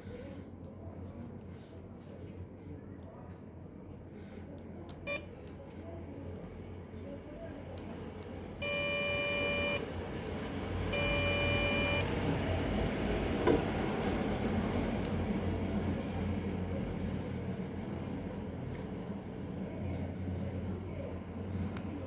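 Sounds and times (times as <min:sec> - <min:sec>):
electronic beeps: 0:08.6 - 0:09.8, 0:11.0 - 0:12.1.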